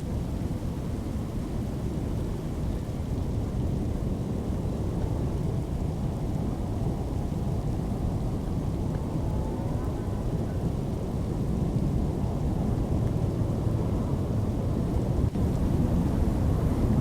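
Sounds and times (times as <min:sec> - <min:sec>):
rain: 0:00.0 - 0:17.0
wind: 0:00.0 - 0:17.0.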